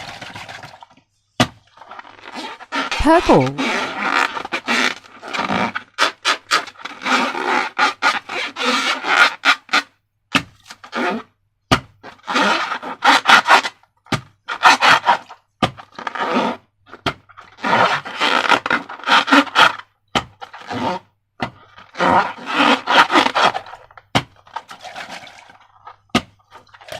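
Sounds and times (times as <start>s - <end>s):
slime squishing and rubbing by hand: 1.8s - 3.8s.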